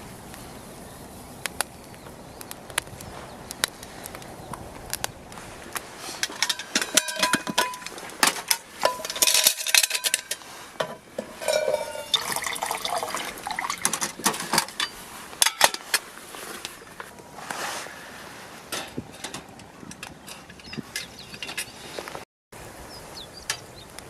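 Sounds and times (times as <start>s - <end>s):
metal cookware clattering: 6.2s - 15.9s
liquid pouring into vessel: 11.4s - 14.1s.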